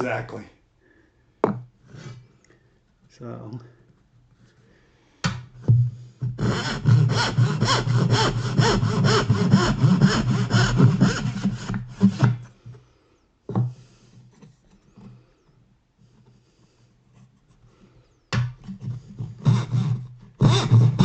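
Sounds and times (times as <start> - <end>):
backsaw cutting wood: 6.2 - 12.5, 18.9 - 21.0.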